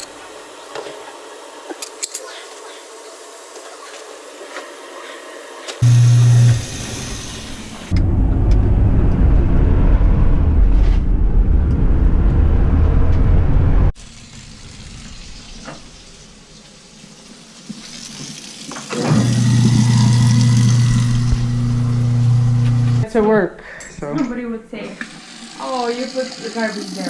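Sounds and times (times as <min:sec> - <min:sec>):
electric motor hum: 0:05.8 - 0:10.4, 0:18.9 - 0:23.0
loud low rumbling: 0:05.8 - 0:14.0, 0:19.5 - 0:23.0.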